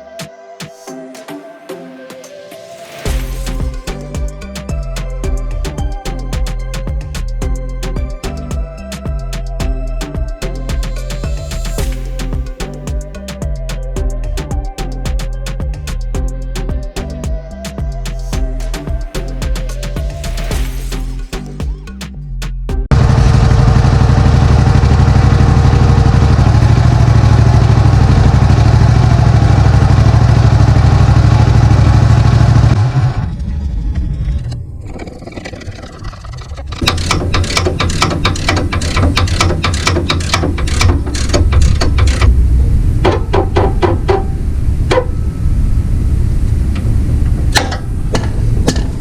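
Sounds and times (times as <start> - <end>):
small engine running: 22.9 - 33.6
rapid irregular clicks and knocks: 36.4 - 42.4, 43.0 - 44.3.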